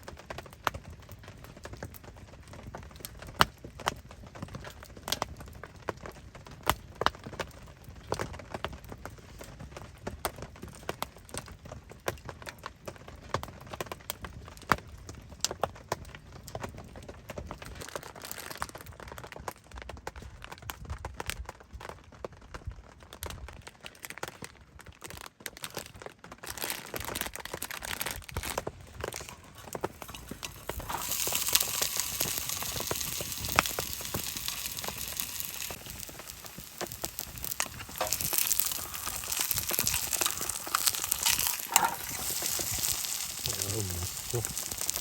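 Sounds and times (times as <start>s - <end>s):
food sizzling in a hot pan: 29.0s - 45.0s
cookware clicking and crinkling: 29.1s - 45.0s.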